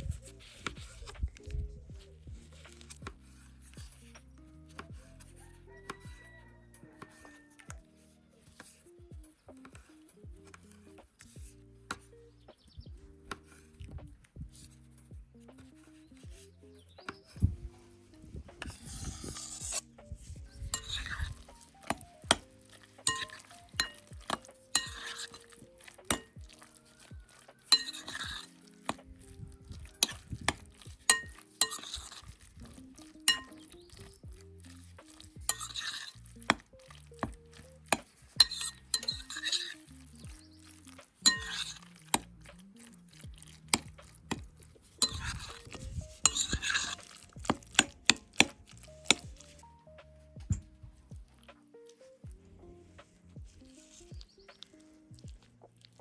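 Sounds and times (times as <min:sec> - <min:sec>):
utensil scraping strokes: 0:00.0 - 0:01.6, 0:14.6 - 0:50.3, 0:52.8 - 0:55.0
quiet background music: 0:00.0 - 0:56.0
spoon clinking against bowl: 0:20.7 - 0:25.5, 0:26.1 - 0:26.4, 0:27.6 - 0:28.9, 0:30.0 - 0:32.4, 0:33.2 - 0:33.8, 0:38.0 - 0:39.8, 0:41.2 - 0:41.8, 0:45.0 - 0:49.5.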